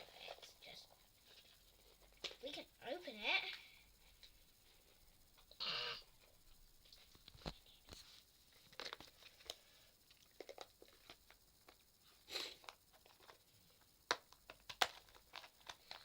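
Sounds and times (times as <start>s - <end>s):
plastic package being opened: 14.1s - 16.0s.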